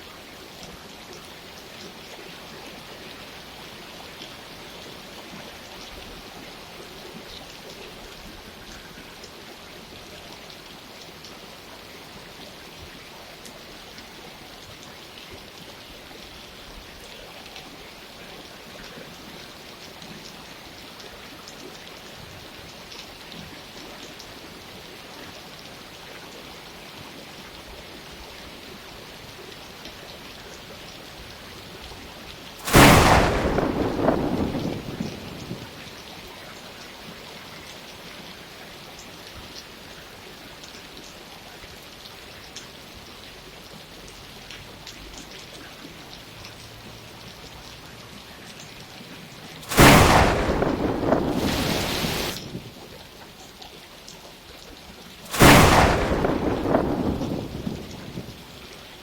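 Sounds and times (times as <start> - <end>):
steady rain falling: 0.0 - 59.0
thunderclap rumbling: 32.6 - 35.9, 49.6 - 52.9, 55.3 - 58.6.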